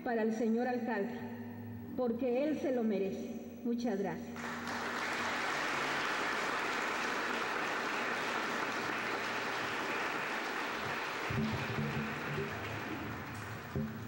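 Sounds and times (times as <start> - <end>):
audience applauding: 4.4 - 14.0
low instrumental music: 11.3 - 14.0.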